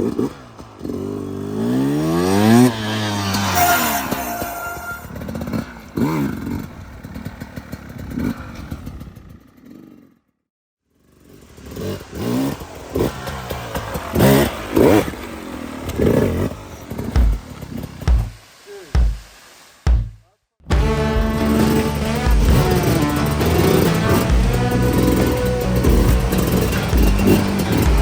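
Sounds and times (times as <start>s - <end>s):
clattering between revs: 0.0s - 4.5s, 11.3s - 18.4s, 20.8s - 28.0s
dirt bike engine revving: 0.0s - 10.1s, 11.0s - 19.3s, 19.9s - 28.0s.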